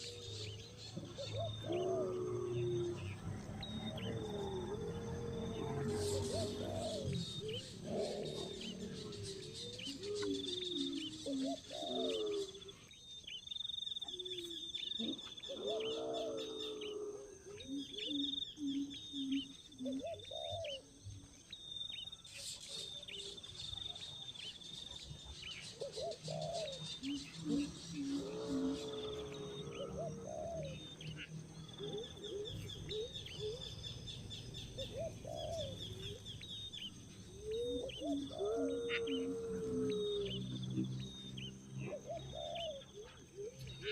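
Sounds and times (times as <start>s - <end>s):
bird low pitched calls: 0.0s - 12.9s, 22.1s - 43.9s.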